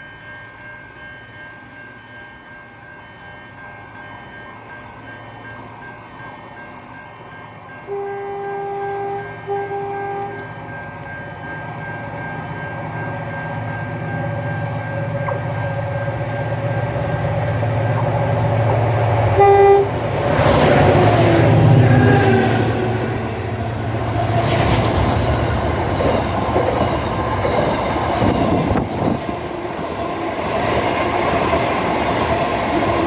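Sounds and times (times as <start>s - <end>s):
train passing rumble: 0.0s - 33.0s
train horn blasts: 7.9s - 10.6s, 19.2s - 23.8s.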